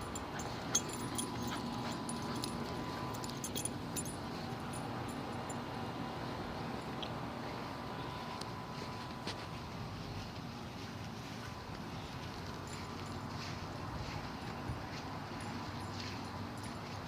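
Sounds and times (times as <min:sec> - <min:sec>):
dog collar tags jingling: 0:00.0 - 0:05.7, 0:15.3 - 0:17.0.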